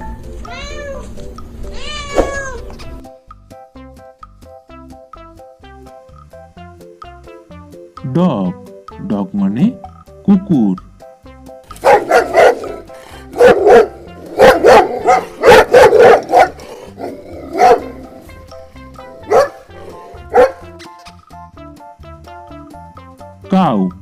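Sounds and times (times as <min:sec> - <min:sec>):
dog barking: 0:11.8 - 0:18.1, 0:19.2 - 0:20.7.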